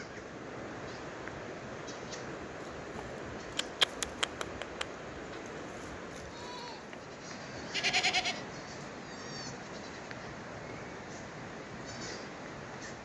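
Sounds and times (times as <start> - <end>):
steady background hiss: 0.0 - 13.0
goat bleating: 6.2 - 8.4.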